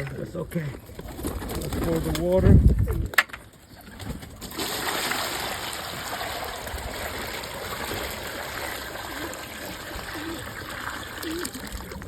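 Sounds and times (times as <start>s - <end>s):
water pouring into a pan: 4.5s - 12.0s.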